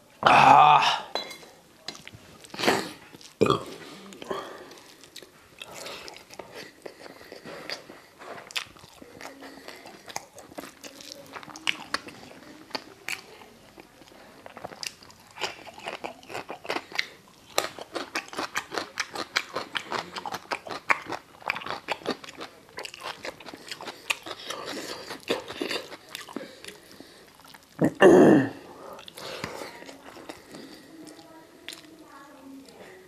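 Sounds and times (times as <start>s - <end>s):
mouth chewing with lip smacks: 4.1s - 27.8s, 28.9s - 32.0s.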